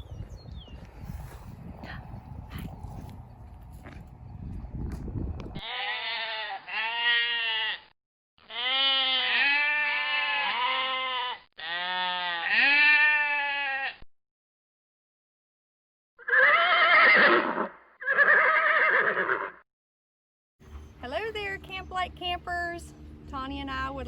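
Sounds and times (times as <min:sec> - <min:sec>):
rough background rumble: 0:00.0 - 0:05.6, 0:20.6 - 0:24.0
goat bleating: 0:05.6 - 0:14.0.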